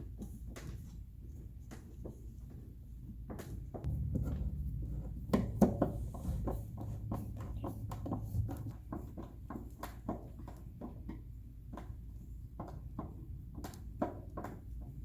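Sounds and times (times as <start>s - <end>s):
low steady hum: 3.8s - 10.7s.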